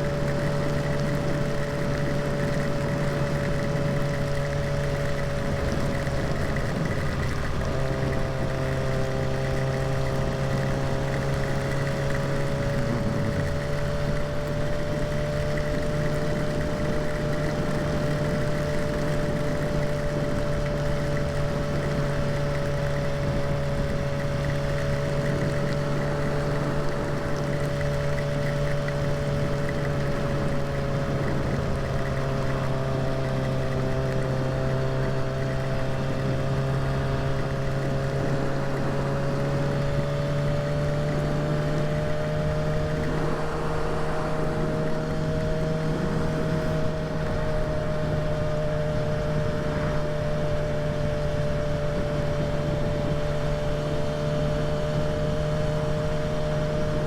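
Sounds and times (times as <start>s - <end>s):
motorcycle engine cruising: 0.0s - 57.0s
steady rushing noise: 38.4s - 57.0s.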